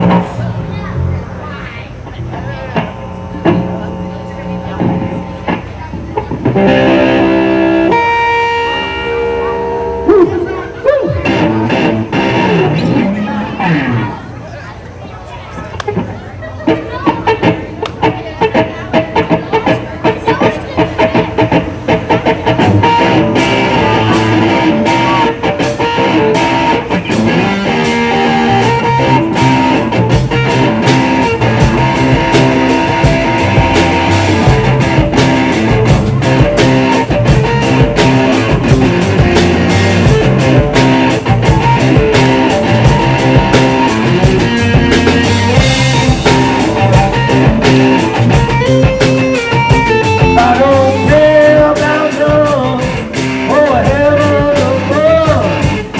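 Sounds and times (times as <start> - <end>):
rock band playing live: 0.0 - 14.4, 15.8 - 55.9.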